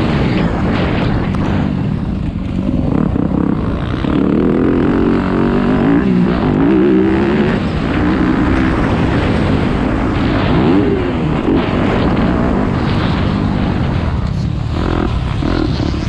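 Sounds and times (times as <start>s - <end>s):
dirt bike engine revving: 0.0s - 16.0s
wind noise on microphone: 0.0s - 16.0s.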